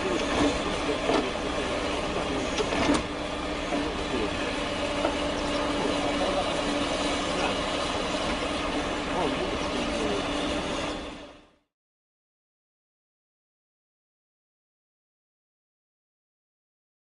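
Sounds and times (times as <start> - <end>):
excavator engine running: 0.0 - 11.6.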